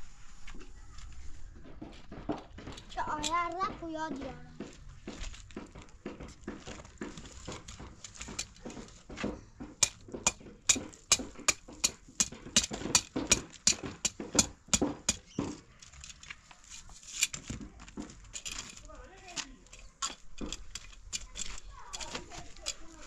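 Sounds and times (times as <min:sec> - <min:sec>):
sharp rhythmic knocks: 0:07.8 - 0:15.6.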